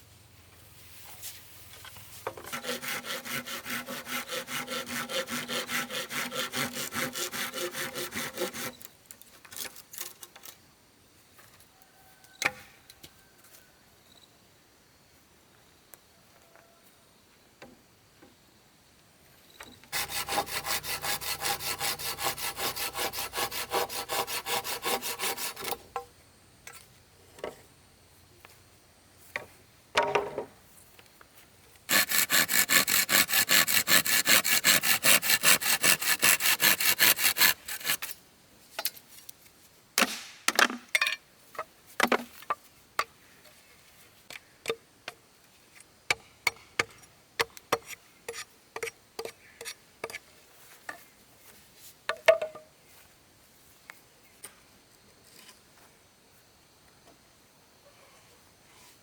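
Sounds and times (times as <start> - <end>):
hand saw cutting wood: 2.4 - 8.9, 19.9 - 25.8, 31.9 - 38.2
knocks and clicks of wood: 52.1 - 52.7.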